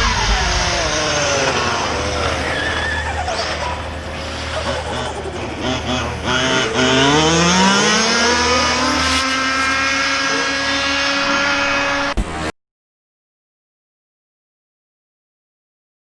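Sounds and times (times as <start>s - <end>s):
rc car motor whining: 0.0s - 12.5s.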